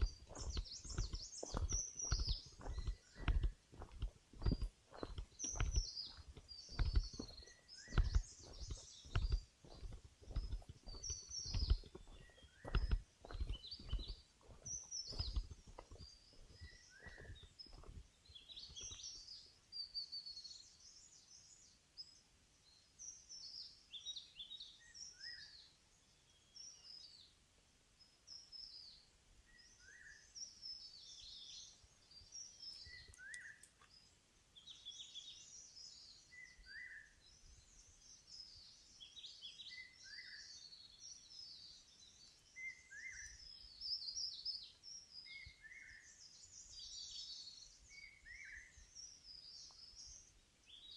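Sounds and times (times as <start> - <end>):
low thumps: 0.0 - 14.1
forest birds singing: 0.0 - 50.9.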